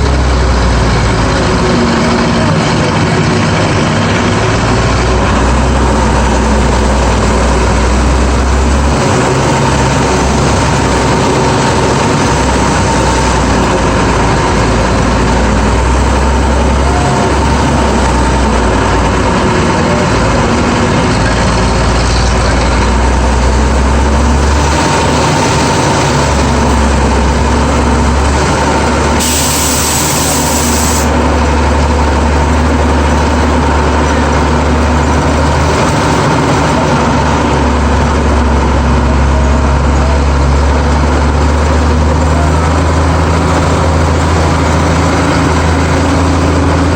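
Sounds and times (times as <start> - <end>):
truck engine running: 0.0 - 46.9
short hiss: 29.2 - 31.1.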